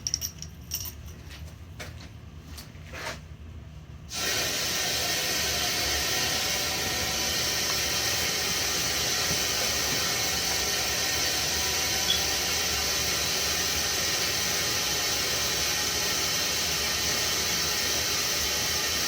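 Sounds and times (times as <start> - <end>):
steam and water hissing from valve: 4.1 - 19.0.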